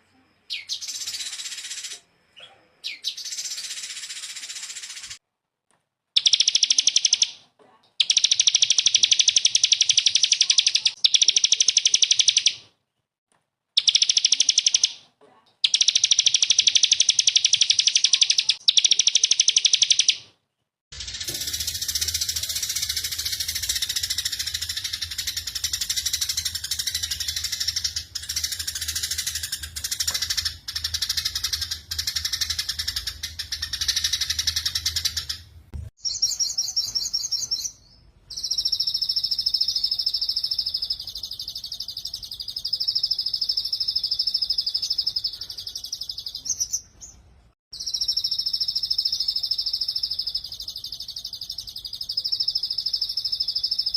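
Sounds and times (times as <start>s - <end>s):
bird twittering: 6.2s - 7.4s, 13.8s - 15.0s, 15.6s - 20.2s, 21.0s - 47.2s
songbird rapid trills: 20.9s - 35.4s.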